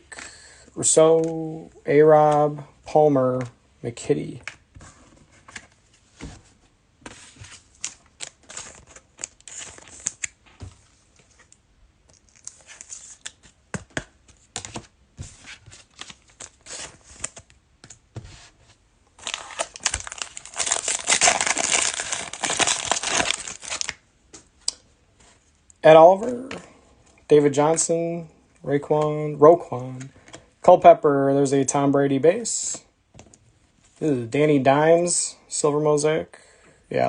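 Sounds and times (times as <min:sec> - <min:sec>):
card pack wrapper ripping: 0:07.8 - 0:10.4, 0:19.2 - 0:24.0.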